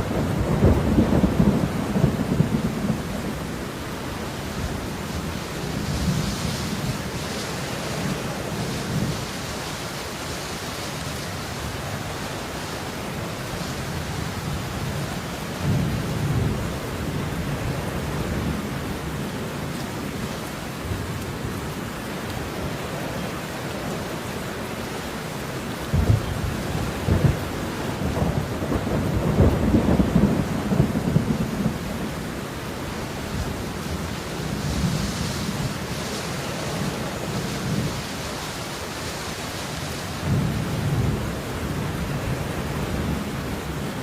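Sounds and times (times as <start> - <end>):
low rumbling thunder: 0.0 - 3.6, 25.8 - 32.2, 40.2 - 43.8
steady rain falling: 0.0 - 44.0.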